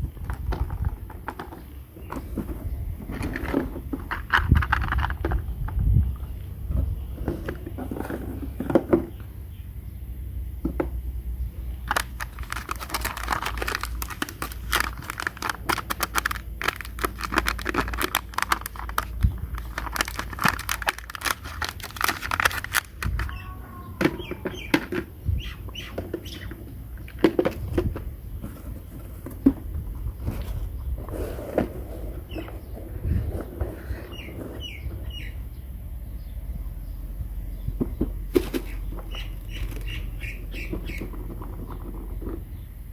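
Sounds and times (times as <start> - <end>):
plastic toy pieces clicking: 11.9 - 23.4.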